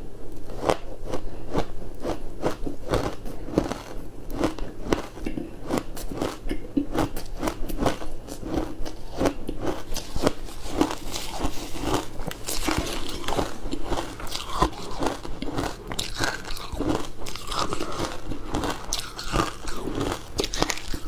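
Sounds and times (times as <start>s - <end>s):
crunching frozen food: 0.5s - 21.0s.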